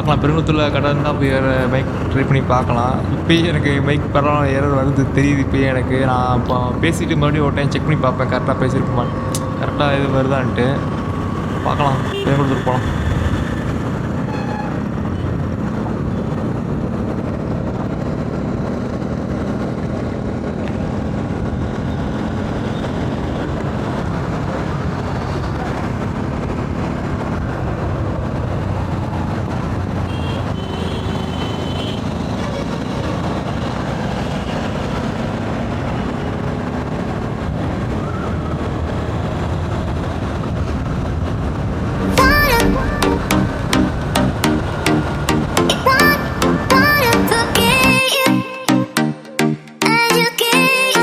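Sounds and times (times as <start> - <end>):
wind and road noise: 0.0 - 47.8
brief high tone: 42.0 - 51.0.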